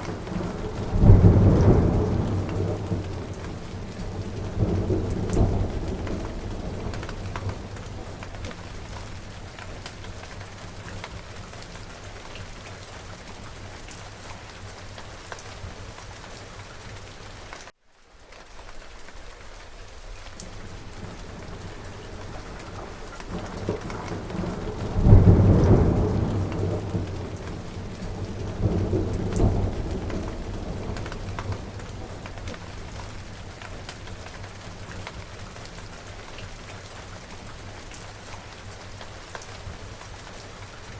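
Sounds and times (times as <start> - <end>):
thunder rumbling: 0.0 - 12.7, 20.5 - 35.8
rain falling: 0.0 - 40.9.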